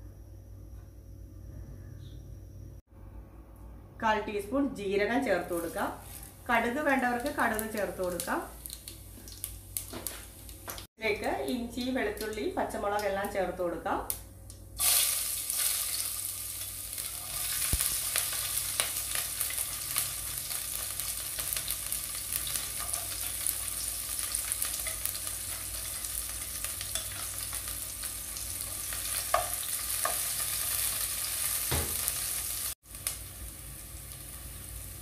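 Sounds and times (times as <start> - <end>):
food sizzling in hot oil: 5.4 - 10.9, 14.8 - 35.0.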